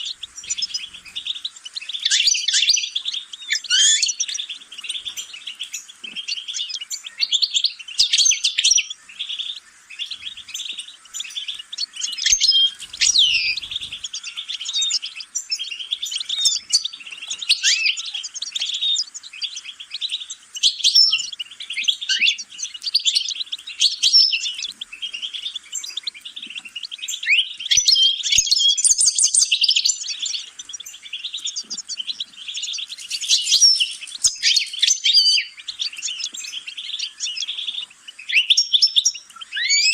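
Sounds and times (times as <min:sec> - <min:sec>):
songbird twittering song: 0:00.0 - 0:39.9.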